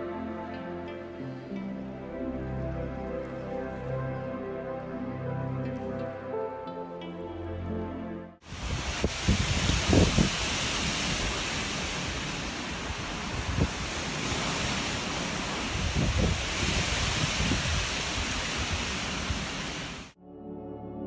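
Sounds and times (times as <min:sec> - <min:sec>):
wind buffeting microphone: 0:08.4 - 0:20.1
steady rushing outdoor noise: 0:08.4 - 0:20.2.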